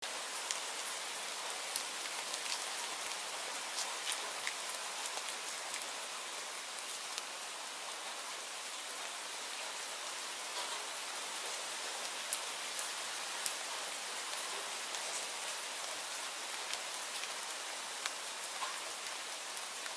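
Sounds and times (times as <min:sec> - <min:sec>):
sharp ticks of raindrops: 0:00.0 - 0:19.9
steady rainfall hiss: 0:00.0 - 0:19.9.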